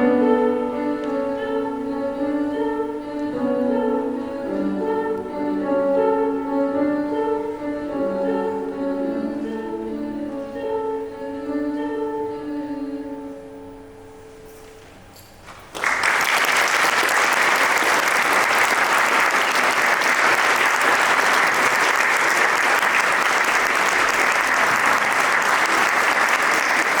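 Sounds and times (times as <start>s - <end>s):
held music chord: 0.0s - 14.6s
audience applause: 15.7s - 27.0s.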